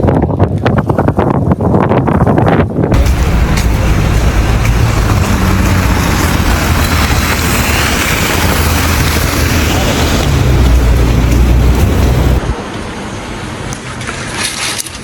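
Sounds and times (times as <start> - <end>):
gusty wind noise: 0.0 - 13.7
motor vehicle rumble: 2.9 - 14.0
road noise: 2.9 - 15.0.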